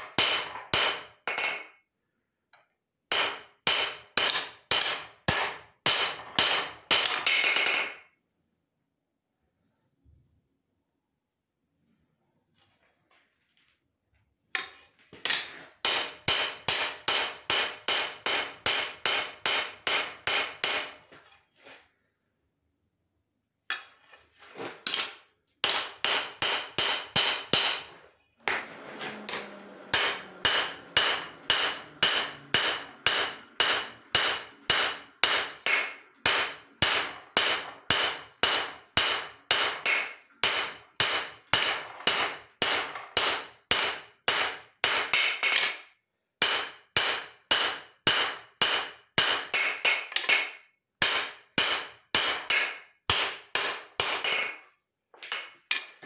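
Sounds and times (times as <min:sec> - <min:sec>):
hammer striking steel on anvil: 0:00.0 - 0:01.7, 0:03.1 - 0:08.0, 0:15.3 - 0:21.0, 0:24.9 - 0:45.8, 0:46.4 - 0:54.5.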